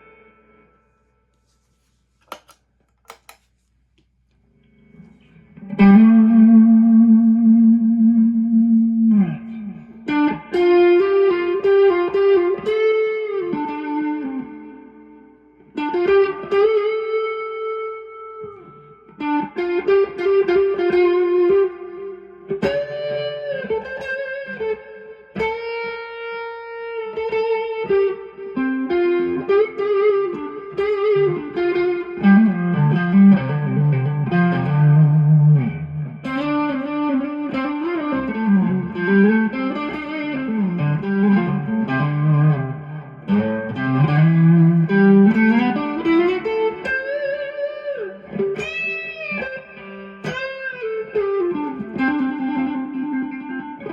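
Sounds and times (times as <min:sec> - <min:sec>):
overdriven electric guitar blues lead: 0:00.0 - 0:00.8, 0:04.6 - 0:53.9.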